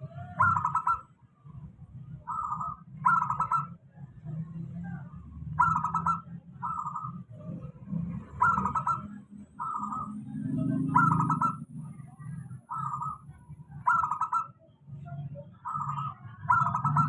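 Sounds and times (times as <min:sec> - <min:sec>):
dove cooing: 0:00.0 - 0:01.6, 0:02.2 - 0:03.8, 0:05.5 - 0:12.0, 0:12.6 - 0:14.5, 0:15.5 - 0:17.0.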